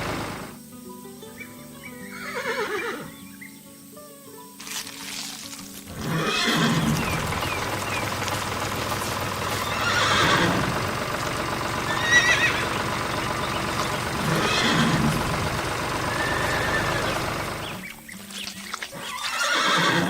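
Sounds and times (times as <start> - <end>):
horse whinnying: 2.1 - 3.1, 5.9 - 7.9, 8.5 - 10.8, 11.9 - 12.7, 14.1 - 17.3, 18.9 - 20.0.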